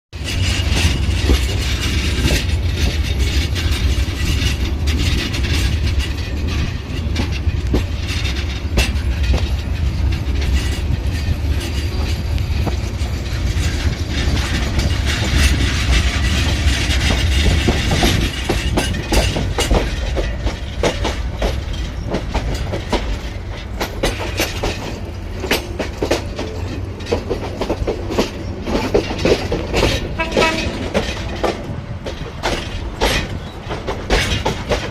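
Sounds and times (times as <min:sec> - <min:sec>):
train rumbling on rails: 0:00.1 - 0:34.9
wheels clicking over rail joints: 0:00.2 - 0:34.9.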